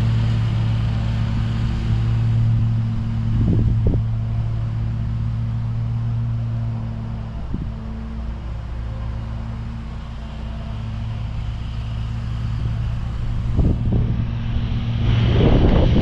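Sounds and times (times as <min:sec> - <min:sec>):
mower engine running: 0:00.0 - 0:16.0
wind gusting across microphone: 0:01.9 - 0:06.2, 0:12.4 - 0:16.0.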